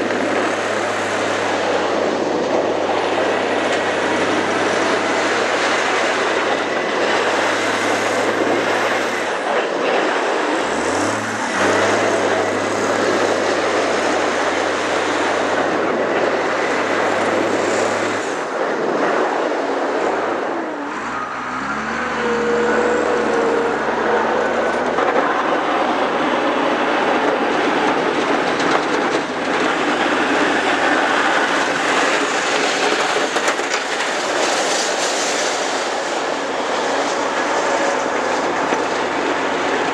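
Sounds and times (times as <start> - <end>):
rushing and rattling noise: 0.0 - 39.9
vehicle engine running: 0.0 - 39.9.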